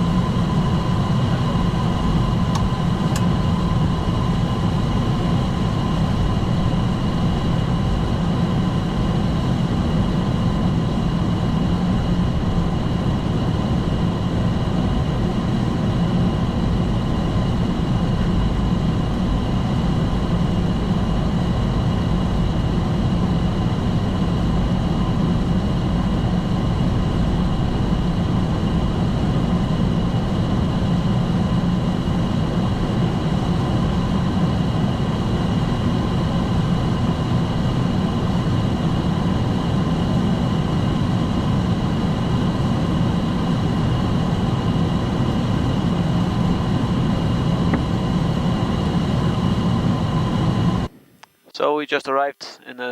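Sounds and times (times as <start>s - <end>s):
engine and airflow rumble: 0.0s - 30.7s.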